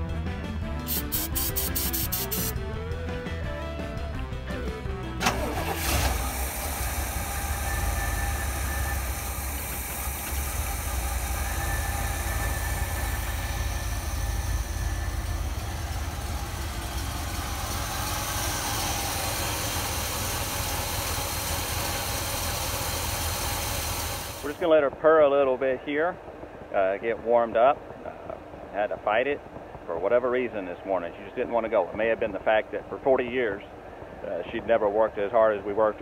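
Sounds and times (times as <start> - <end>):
car engine idling: 5.2 - 24.7.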